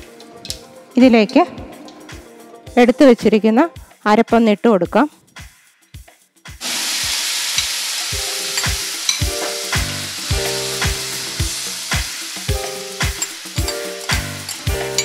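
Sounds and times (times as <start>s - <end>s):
paste sizzling in hot oil: 6.6s - 15.0s.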